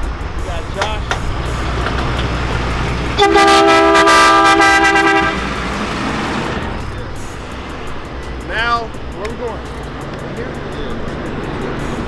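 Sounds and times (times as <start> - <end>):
low engine rumble: 0.0 - 12.0
two-note vehicle horn: 2.8 - 6.7.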